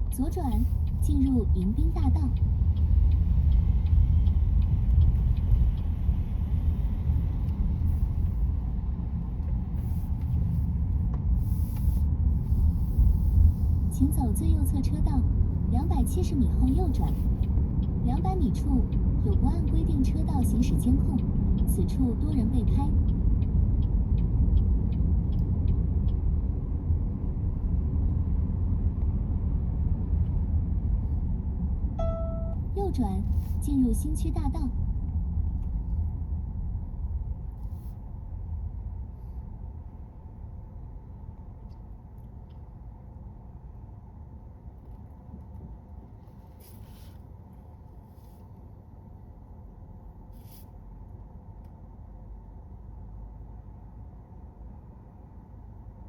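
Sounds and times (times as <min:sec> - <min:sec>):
car road and engine rumble: 0:00.0 - 0:56.0
faint regular ticking: 0:00.2 - 0:08.2, 0:15.2 - 0:26.6.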